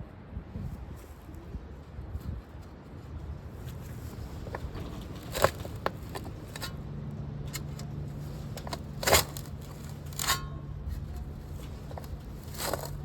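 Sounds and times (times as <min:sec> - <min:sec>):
hand tool crunching in soil: 0:03.7 - 0:06.8, 0:07.5 - 0:13.0.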